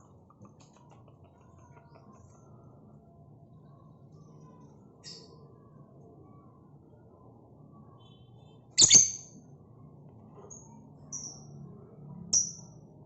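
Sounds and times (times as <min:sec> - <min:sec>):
caged birds chirping: 0:07.8 - 0:09.5.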